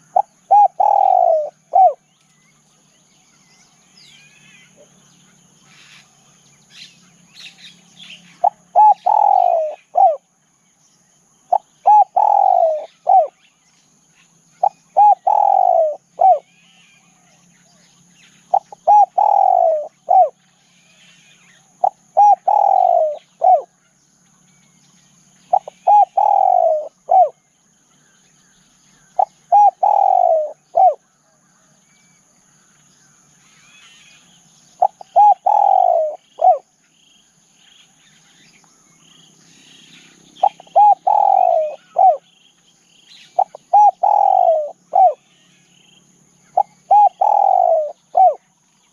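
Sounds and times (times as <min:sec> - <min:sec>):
dove cooing: 0:00.0 - 0:02.0, 0:08.2 - 0:10.2, 0:11.5 - 0:13.4, 0:14.6 - 0:16.7, 0:18.4 - 0:21.0, 0:21.8 - 0:23.7, 0:25.5 - 0:27.4, 0:29.0 - 0:31.0, 0:34.8 - 0:36.7, 0:39.9 - 0:42.3, 0:43.3 - 0:45.4, 0:46.4 - 0:48.4
bird chirps: 0:00.0 - 0:48.9
insect drone: 0:00.0 - 0:48.9.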